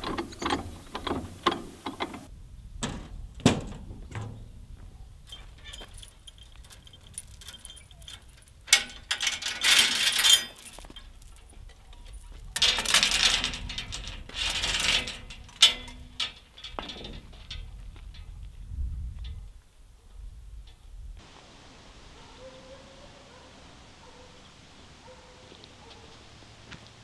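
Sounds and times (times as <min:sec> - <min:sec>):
metal chains rattling: 0:00.0 - 0:02.3, 0:05.2 - 0:18.4
sharp metal clank: 0:12.6 - 0:17.5.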